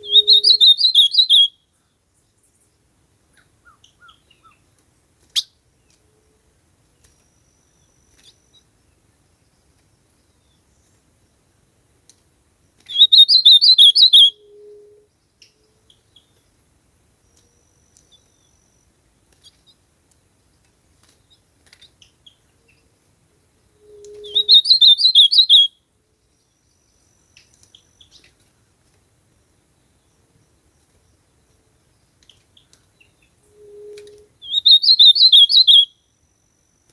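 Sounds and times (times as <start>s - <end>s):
bird singing warbled phrases: 0.0s - 1.5s, 12.8s - 14.8s, 24.0s - 25.7s, 32.6s - 35.9s.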